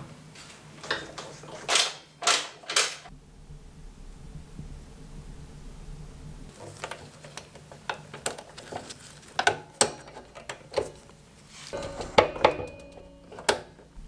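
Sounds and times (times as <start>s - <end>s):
metal tools clinking: 11.7s - 13.6s.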